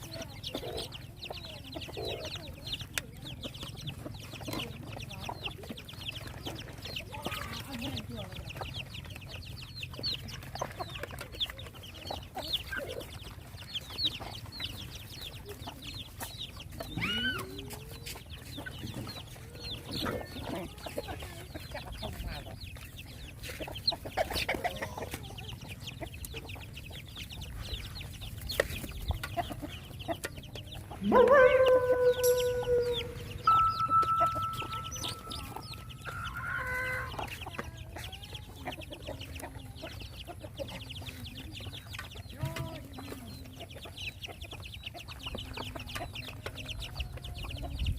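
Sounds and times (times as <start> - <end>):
chickens clucking: 0.0 - 47.9
high-pitched peeps: 29.0 - 42.3
rooster crowing: 31.0 - 34.5.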